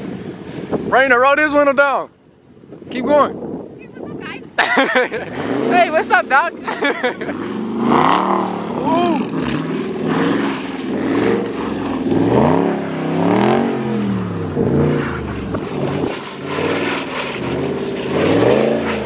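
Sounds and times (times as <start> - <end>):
car engine revving: 5.0 - 19.0.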